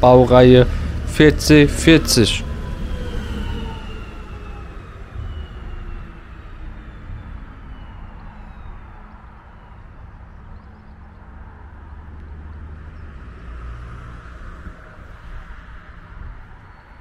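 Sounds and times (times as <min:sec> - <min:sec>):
distant train rumbling on rails: 0:00.0 - 0:17.0.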